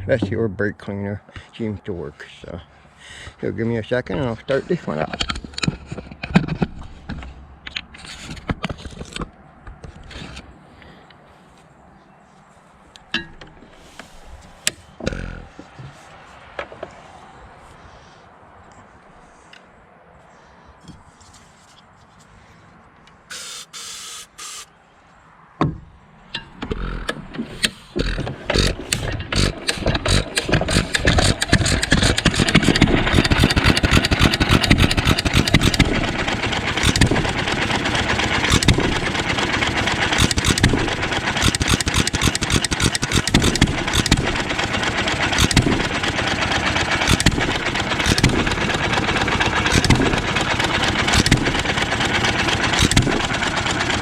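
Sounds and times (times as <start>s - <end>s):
stationary engine starting and running: 26.6s - 54.0s.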